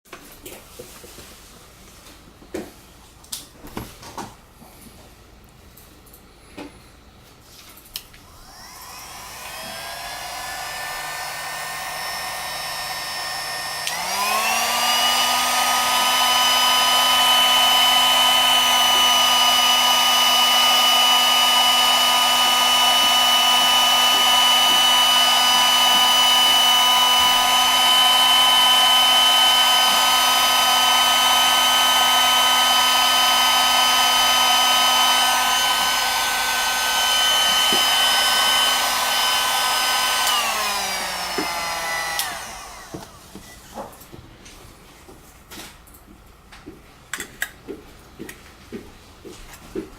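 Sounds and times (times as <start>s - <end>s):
heat gun fan whining: 7.9s - 44.2s.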